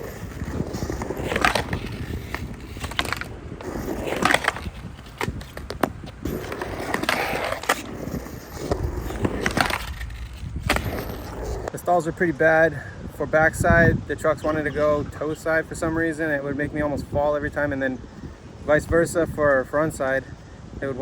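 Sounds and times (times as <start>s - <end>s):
skateboard trucks clacking on coping: 0.0s - 11.8s
skateboard trucks scraping: 0.0s - 12.8s
skateboard wheels rumbling on concrete: 0.0s - 16.1s.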